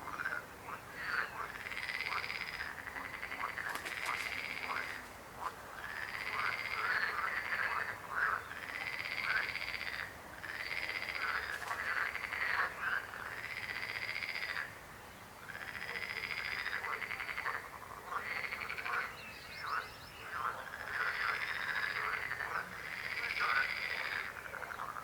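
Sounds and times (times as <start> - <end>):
frogs croaking: 0.0 - 25.0.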